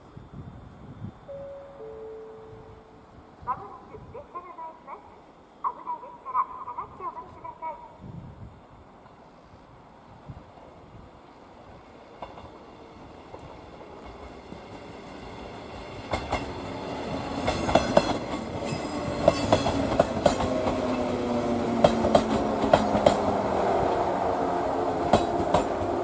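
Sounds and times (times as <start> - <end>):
electric train whine: 0.1 - 3.5, 10.0 - 26.0
wheels clacking over rail joints: 13.2 - 24.0, 25.0 - 26.0.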